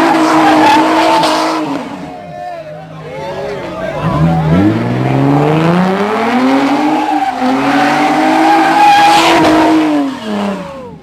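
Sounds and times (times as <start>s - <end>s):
car engine revving high: 0.0s - 2.1s, 3.8s - 11.0s
tyres squealing: 6.0s - 11.0s.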